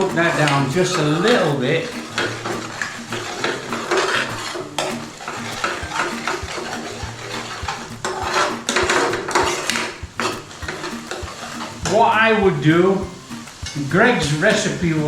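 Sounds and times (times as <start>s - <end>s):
spoon scraping and clinking in pan: 0.0s - 12.0s.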